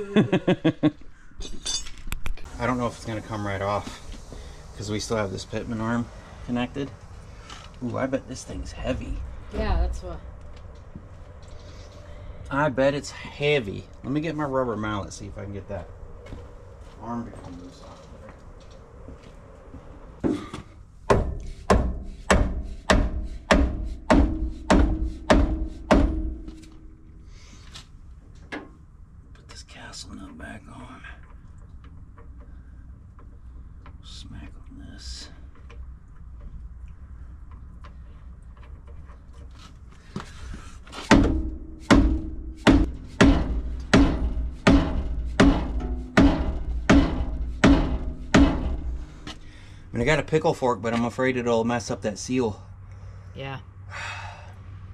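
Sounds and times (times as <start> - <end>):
rubber mallet striking metal: 21.1 - 27.0, 41.1 - 49.2.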